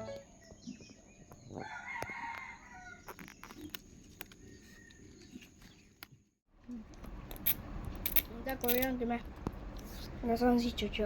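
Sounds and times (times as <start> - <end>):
rooster crowing: 1.6 - 3.1.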